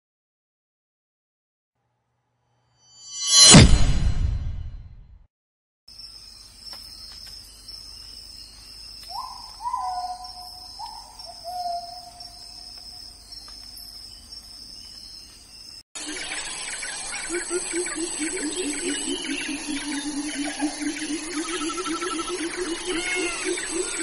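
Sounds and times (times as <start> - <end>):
insect chirring: 5.9 - 24.0
bird hooting calls: 9.1 - 12.7, 17.2 - 24.0.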